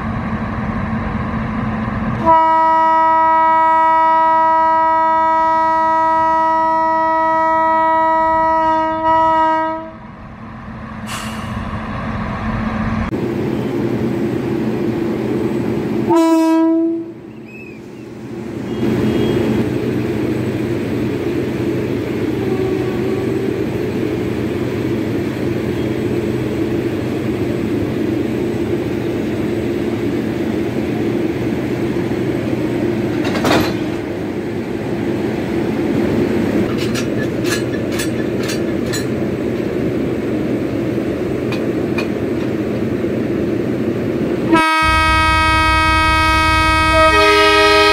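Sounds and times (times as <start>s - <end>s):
train horn blast: 2.2s - 10.0s, 16.1s - 17.2s, 18.7s - 19.6s, 22.3s - 23.6s, 44.5s - 47.9s.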